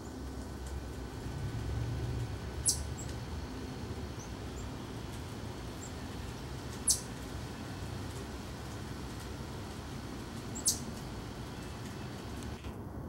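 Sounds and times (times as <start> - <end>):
low steady rumble: 0.0 - 13.0
songbird chip calls: 2.6 - 3.2, 6.8 - 7.1, 10.5 - 12.6.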